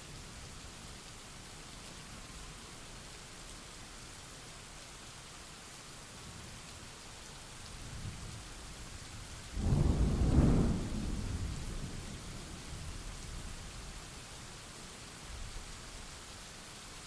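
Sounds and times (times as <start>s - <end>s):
steady rain hissing: 0.0s - 17.0s
low rumble of thunder: 9.5s - 13.9s
loud thunderclap: 9.6s - 12.1s.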